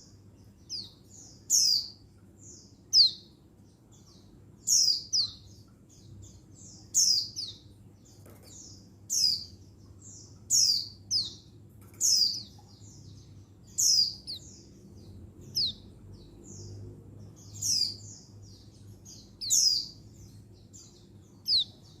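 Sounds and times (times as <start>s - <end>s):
white-eye contact call chirps: 2.9s - 3.2s, 13.7s - 14.5s, 15.6s - 15.8s, 21.4s - 22.0s.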